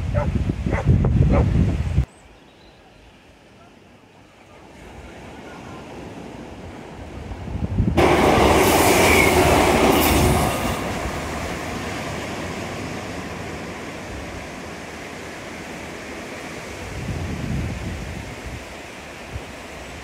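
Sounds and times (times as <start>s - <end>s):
train passing: 4.4s - 20.0s.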